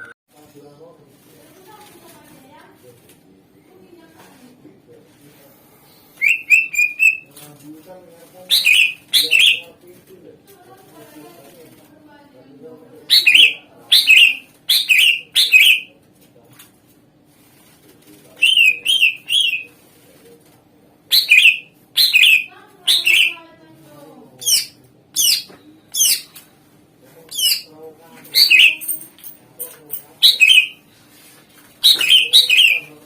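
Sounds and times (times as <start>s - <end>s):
bird singing whistled notes: 6.2s - 7.2s, 8.5s - 9.6s, 28.4s - 28.9s, 30.2s - 30.8s, 31.8s - 32.9s.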